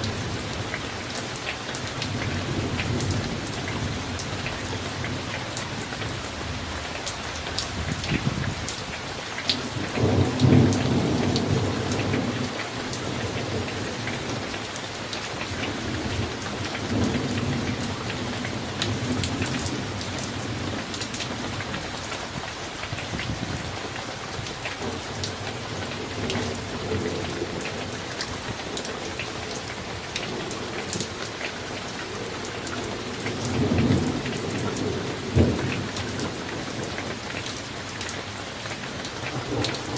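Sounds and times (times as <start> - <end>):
rain falling: 0.0 - 39.9
raindrops clicking on surfaces: 0.0 - 39.9
thunder rumbling: 15.8 - 37.2.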